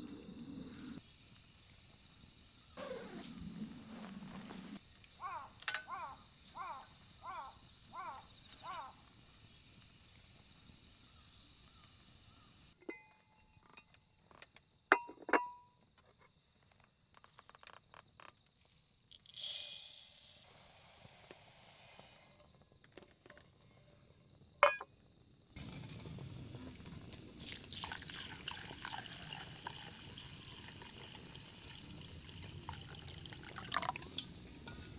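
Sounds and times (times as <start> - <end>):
insect chirping: 0.0 - 14.9, 27.3 - 34.8
light clinks and knocks: 12.9 - 15.8.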